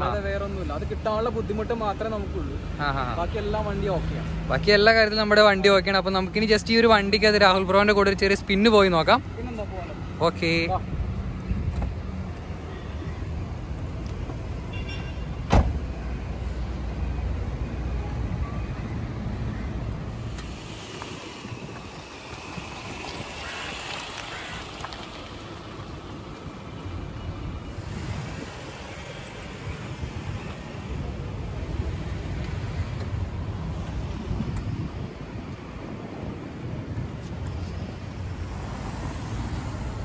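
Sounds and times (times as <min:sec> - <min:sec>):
higher hiss: 0:20.1 - 0:24.8.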